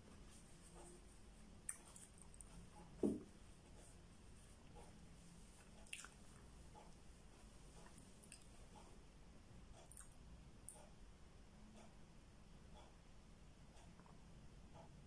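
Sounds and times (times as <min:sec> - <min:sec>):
person chewing: 0:01.6 - 0:02.6, 0:05.6 - 0:06.5, 0:07.8 - 0:08.5, 0:09.8 - 0:10.2
soft thump: 0:03.0 - 0:03.3.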